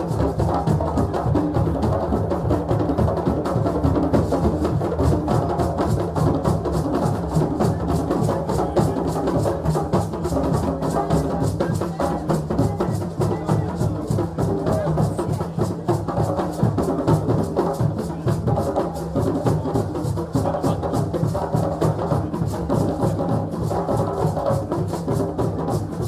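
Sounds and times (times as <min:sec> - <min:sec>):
drums playing fast rhythm: 0:00.0 - 0:26.0.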